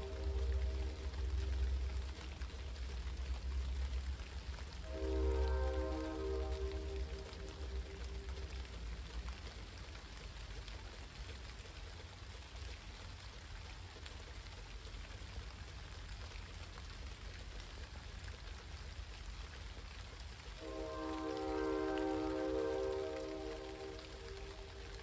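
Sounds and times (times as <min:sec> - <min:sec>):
low rumble: 0:00.0 - 0:09.4
rain falling: 0:00.0 - 0:25.0
raindrops ticking: 0:00.0 - 0:25.0.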